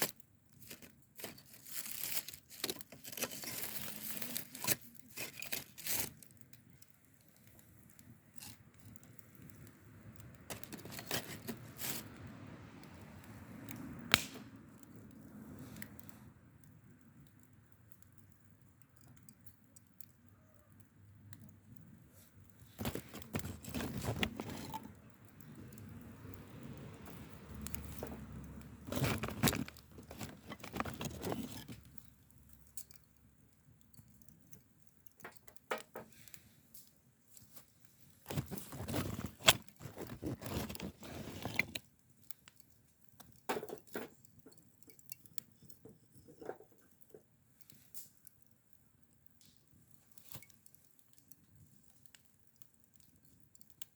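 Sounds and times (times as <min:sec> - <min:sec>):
rustling and crinkling handling noise: 0:00.0 - 0:12.2, 0:22.0 - 0:25.8, 0:27.0 - 0:32.2, 0:34.2 - 0:48.3
clicks and light knocks: 0:33.8 - 0:40.8.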